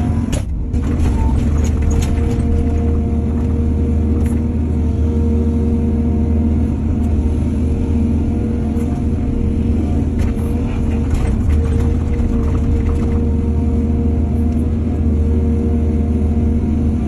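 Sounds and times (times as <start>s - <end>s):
diesel engine rumbling: 0.0s - 17.0s
rattling and clatter: 0.3s - 4.6s, 10.0s - 13.6s.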